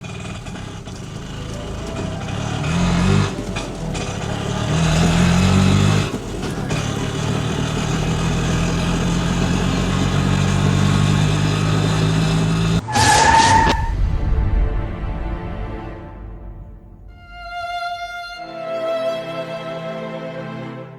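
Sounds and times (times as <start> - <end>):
vehicle engine revving: 0.0 - 13.8
car horn honk: 1.4 - 7.0.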